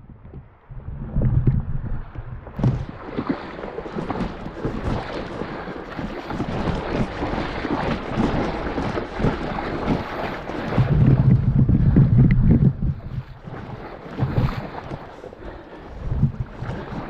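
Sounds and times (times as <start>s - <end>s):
wind buffeting microphone: 0.0s - 17.0s
river water rushing and splashing: 2.6s - 11.4s, 13.3s - 17.0s.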